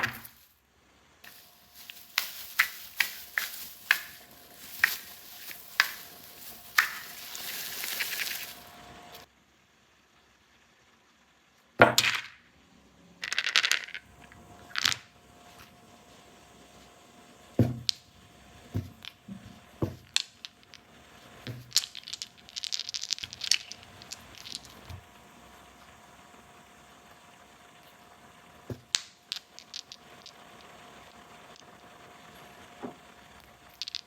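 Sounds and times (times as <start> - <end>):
packaging crinkling: 1.3 - 9.2
clicks of small hard toy pieces: 28.8 - 30.7.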